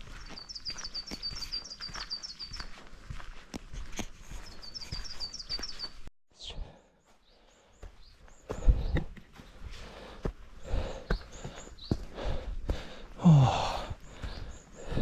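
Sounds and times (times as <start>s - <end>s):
small bird rapid high chirps: 0.0s - 2.8s, 4.4s - 6.1s
footsteps on dirt trail: 0.0s - 6.1s, 7.0s - 15.0s.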